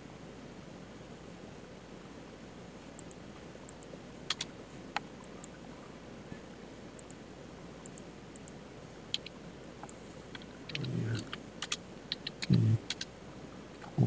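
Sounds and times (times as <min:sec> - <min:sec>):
mouse and keyboard clicks: 0:03.0 - 0:05.6, 0:07.8 - 0:13.1
person humming low: 0:10.7 - 0:11.3, 0:12.4 - 0:12.9.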